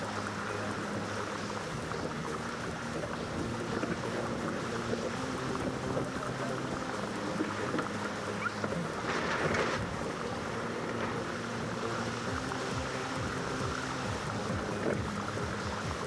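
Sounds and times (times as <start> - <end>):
steady low hum: 0.0 - 16.0
water rushing along hull: 0.0 - 16.0.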